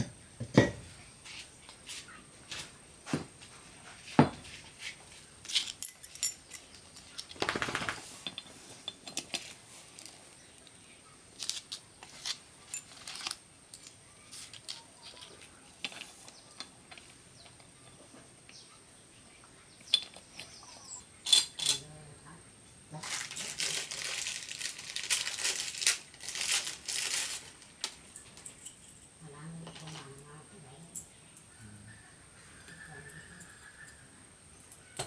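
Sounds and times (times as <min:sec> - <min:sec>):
metallic clinks of tools: 0:05.5 - 0:07.1, 0:21.2 - 0:21.8.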